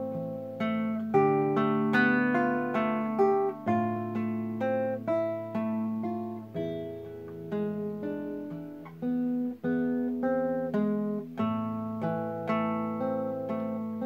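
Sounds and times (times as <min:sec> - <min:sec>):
fingerpicked acoustic guitar: 0:00.0 - 0:14.0.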